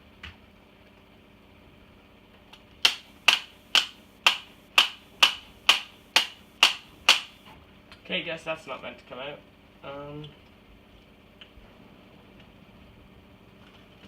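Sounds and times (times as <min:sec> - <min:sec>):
sharp evenly spaced clicks: 0:02.8 - 0:07.5.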